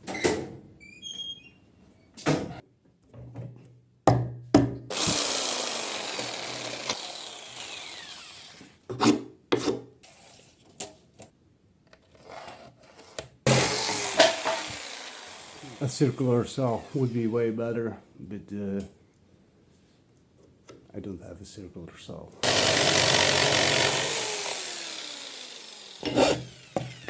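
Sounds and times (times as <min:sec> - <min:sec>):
saw cutting wood: 0:04.9 - 0:09.8, 0:13.5 - 0:17.2, 0:22.4 - 0:27.0.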